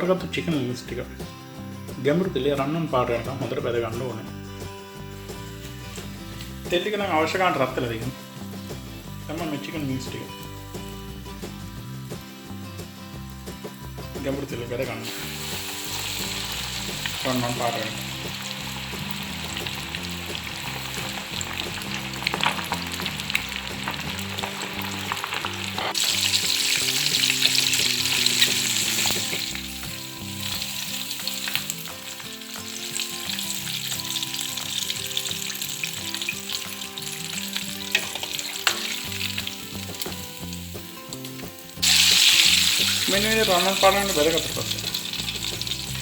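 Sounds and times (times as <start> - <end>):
food sizzling in hot oil: 4.0 - 46.0.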